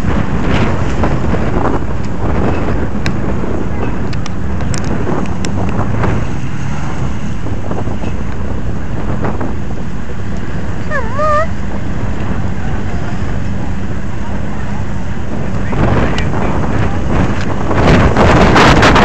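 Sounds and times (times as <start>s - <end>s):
car engines rumbling: 0.0s - 19.0s
wind buffeting microphone: 0.0s - 19.0s
wavering tone: 10.9s - 11.5s.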